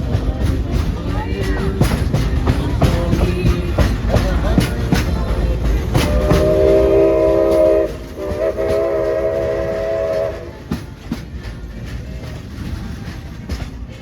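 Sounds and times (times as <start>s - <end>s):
train cars clicking and rumbling: 0.0s - 14.0s
steam locomotive chime whistle: 5.8s - 10.8s.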